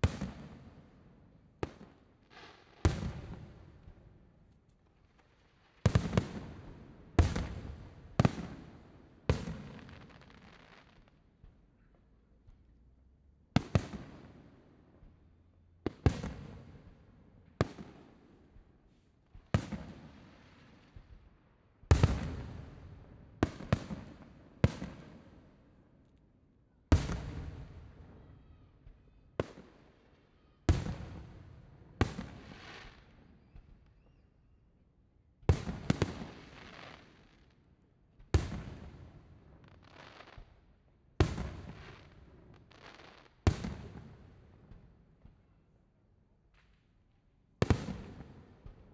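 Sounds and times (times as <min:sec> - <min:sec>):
fireworks bangs with rumbling echo: 0:00.0 - 0:04.3, 0:05.8 - 0:11.7, 0:13.6 - 0:15.2, 0:15.8 - 0:18.8, 0:19.4 - 0:25.6, 0:26.9 - 0:29.8, 0:30.7 - 0:34.1, 0:35.4 - 0:37.2, 0:38.1 - 0:45.6, 0:47.6 - 0:48.9.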